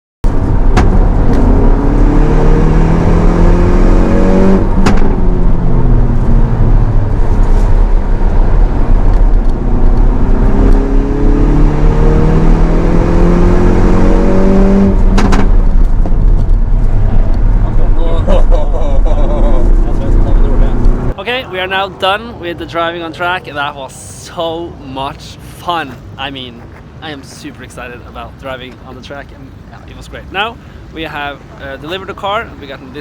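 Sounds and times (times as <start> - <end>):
car engine accelerating: 0.2 - 21.2
road and wind noise: 0.2 - 33.0.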